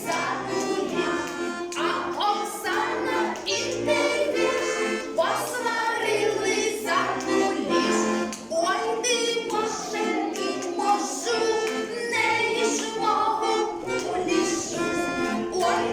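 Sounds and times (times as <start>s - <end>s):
children's folk song singing: 0.0s - 15.9s
instrumental accompaniment: 0.0s - 15.9s.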